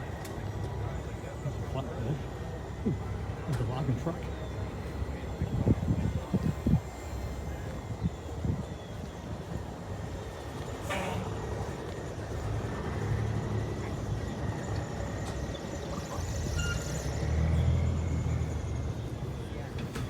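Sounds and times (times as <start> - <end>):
trucks rumbling past: 10.5 - 20.0.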